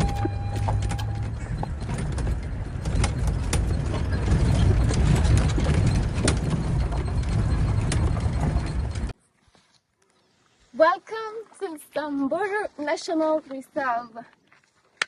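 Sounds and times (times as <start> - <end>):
sharp knocks and rattles: 0.0 - 9.2
vehicle rumble on dirt track: 0.0 - 9.2.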